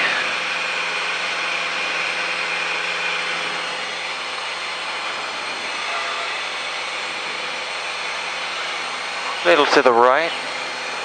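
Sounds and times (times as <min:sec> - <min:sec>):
propeller aircraft engine drone: 0:00.0 - 0:11.0.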